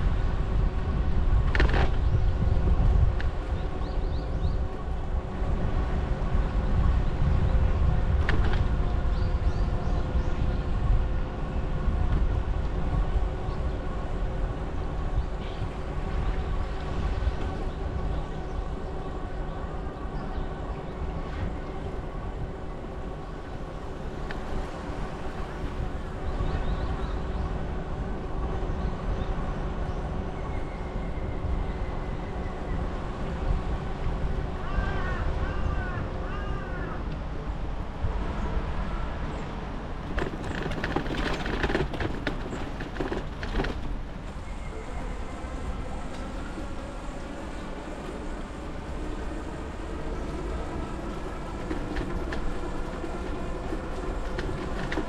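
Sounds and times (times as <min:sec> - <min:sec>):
constant hum: 0:00.0 - 0:55.0
wind rumble on microphone: 0:00.0 - 0:55.0
bicycle running noise: 0:40.0 - 0:55.0.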